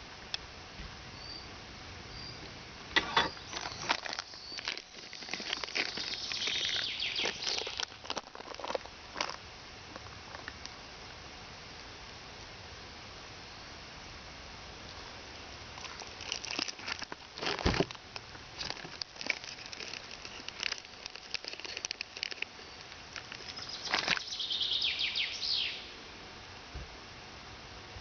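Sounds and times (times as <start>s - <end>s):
hands handling food and utensils: 3.0s - 9.4s, 18.6s - 24.3s
dense crinkling: 3.0s - 10.7s, 15.7s - 24.3s.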